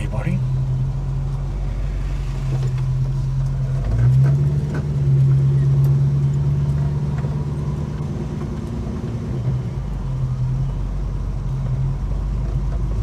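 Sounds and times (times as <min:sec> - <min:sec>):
car engine droning in cabin: 0:00.0 - 0:13.0.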